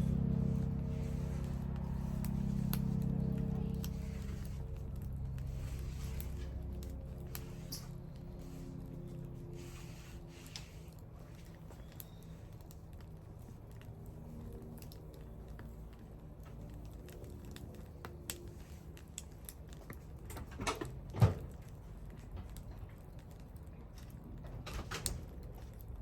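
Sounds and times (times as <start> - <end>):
low steady hum: 0.0 - 24.6
wood bonfire crackling: 0.0 - 26.0.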